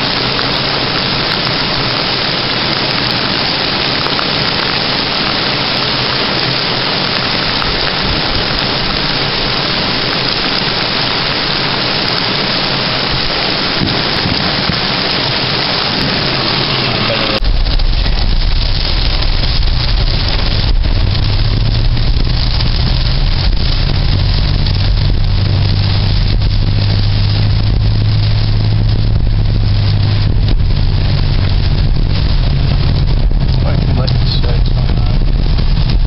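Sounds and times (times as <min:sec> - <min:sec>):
heavy rain hissing: 0:00.0 - 0:36.0.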